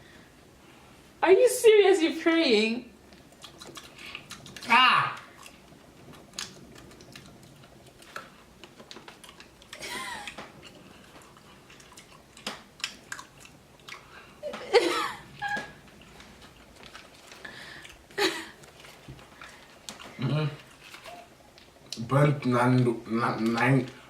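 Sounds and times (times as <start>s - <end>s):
person chewing crunchy snack: 3.2s - 14.4s, 15.8s - 22.0s.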